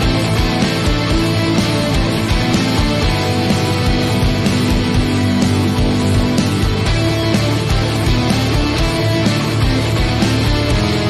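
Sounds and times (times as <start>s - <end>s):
bass guitar: 0.0s - 11.0s
electric guitar: 0.0s - 11.0s
steady drum beat: 0.0s - 11.0s.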